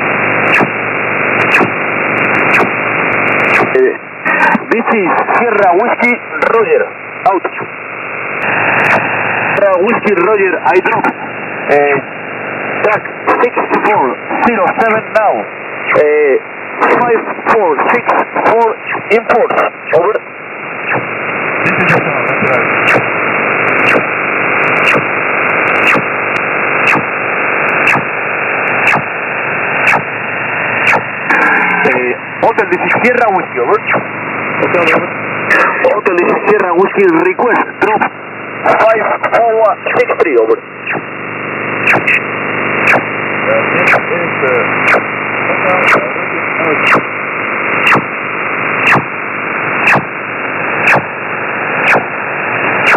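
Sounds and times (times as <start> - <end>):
radio static hiss: 0.0 - 52.9
short radio signal sweeps: 0.4 - 6.6, 8.4 - 11.3, 16.7 - 20.2, 20.8 - 26.2, 26.8 - 49.1, 49.7 - 52.9.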